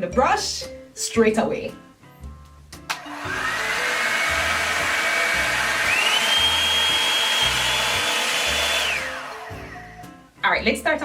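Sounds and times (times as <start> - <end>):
hair dryer motor whine: 2.9 - 9.8.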